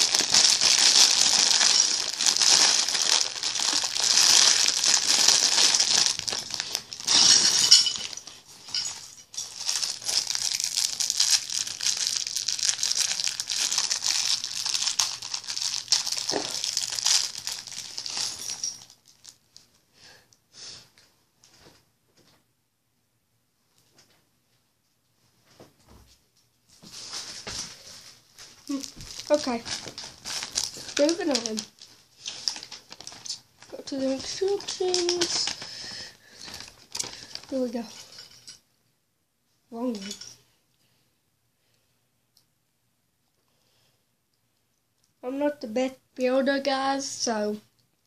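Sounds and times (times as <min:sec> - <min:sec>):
plastic packaging crinkling: 0:00.0 - 0:19.7, 0:27.0 - 0:38.5.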